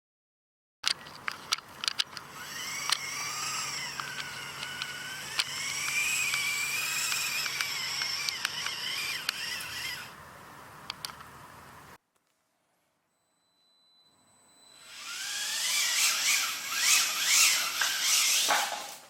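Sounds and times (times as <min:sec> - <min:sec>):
toy motor whining: 0:01.5 - 0:10.2, 0:14.5 - 0:19.0.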